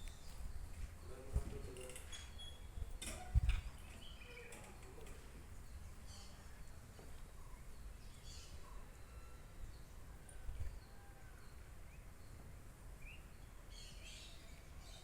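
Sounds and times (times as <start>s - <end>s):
faint bird chirps: 5.6s - 15.0s.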